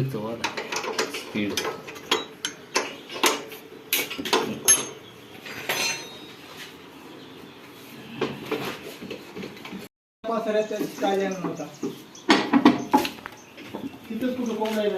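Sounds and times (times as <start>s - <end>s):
metal parts clanking together: 0.4s - 6.3s.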